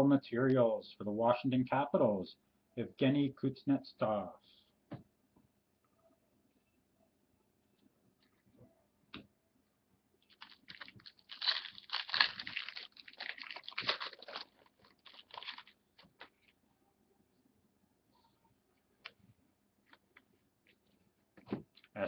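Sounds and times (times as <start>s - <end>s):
card pack wrapper crinkling: 10.3s - 16.4s.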